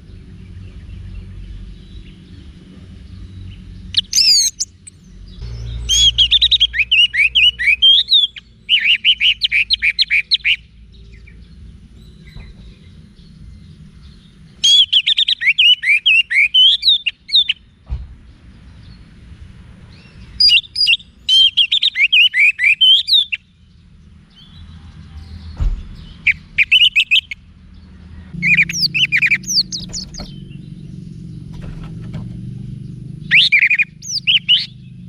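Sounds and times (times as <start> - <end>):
thrush singing whistled notes: 3.9 - 11.4, 14.1 - 17.7, 20.0 - 23.5, 25.9 - 27.5, 28.4 - 31.6, 32.9 - 35.0.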